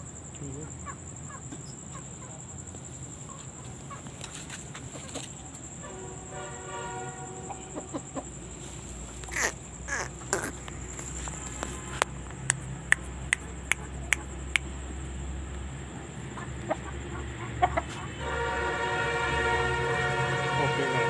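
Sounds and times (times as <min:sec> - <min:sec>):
short chicken calls: 0:09.1 - 0:14.4.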